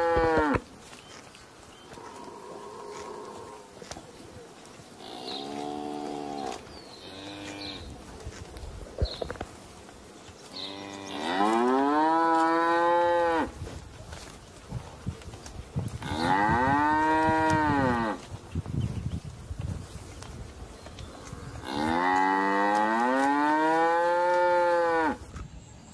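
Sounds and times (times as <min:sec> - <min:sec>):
calves mooing: 0:00.0 - 0:00.6, 0:05.0 - 0:07.9, 0:10.5 - 0:13.5, 0:16.0 - 0:18.3, 0:21.5 - 0:25.2.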